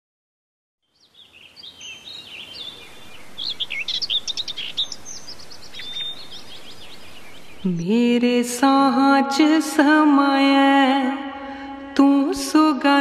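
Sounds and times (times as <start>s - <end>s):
birds chirping: 0.8s - 8.6s.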